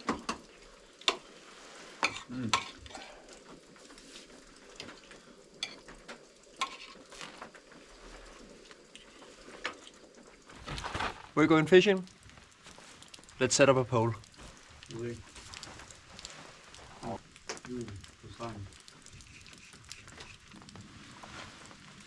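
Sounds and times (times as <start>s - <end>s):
bacon sizzling in a frying pan: 0.0s - 22.0s
metal utensil clinking and scraping: 6.6s - 7.1s.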